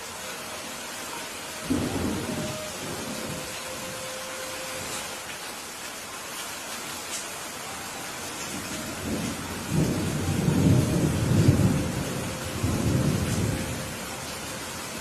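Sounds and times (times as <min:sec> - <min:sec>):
steady rain: 0:00.0 - 0:15.0
thunder rumble: 0:01.6 - 0:03.6, 0:08.5 - 0:14.1.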